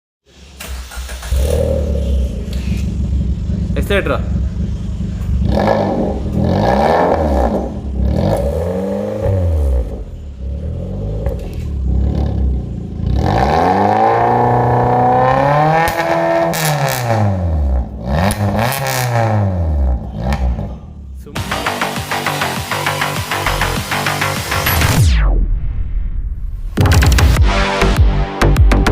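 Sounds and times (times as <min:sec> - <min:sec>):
car engine revving: 0:00.3 - 0:25.4.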